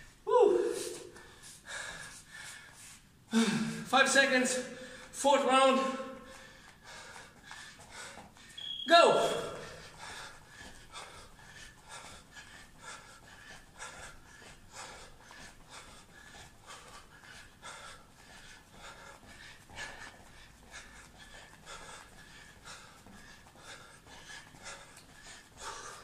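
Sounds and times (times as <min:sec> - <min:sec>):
person breathing hard: 0:00.0 - 0:03.9, 0:04.6 - 0:05.2, 0:05.9 - 0:08.6, 0:09.3 - 0:26.0.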